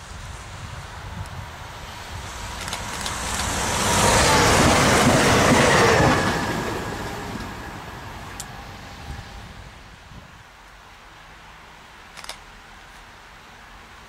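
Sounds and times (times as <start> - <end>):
train passing at speed: 0.0 - 10.4.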